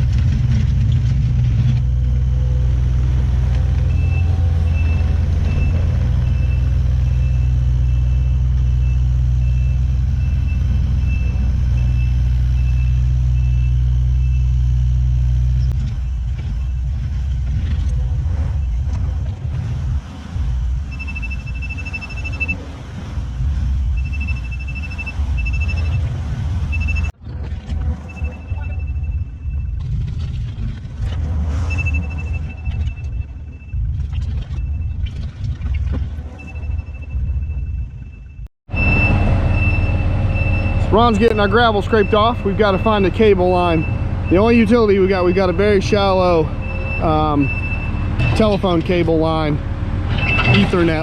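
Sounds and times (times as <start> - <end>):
diesel engine running: 0.0 - 51.0
back-up alarm beeping: 1.6 - 17.3, 20.9 - 22.7, 23.6 - 27.1, 27.9 - 29.8, 31.6 - 33.8, 36.3 - 51.0.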